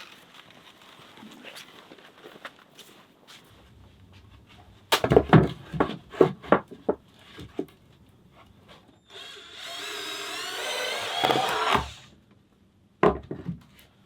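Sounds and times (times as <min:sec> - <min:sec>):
power tool whining: 0:09.1 - 0:12.1.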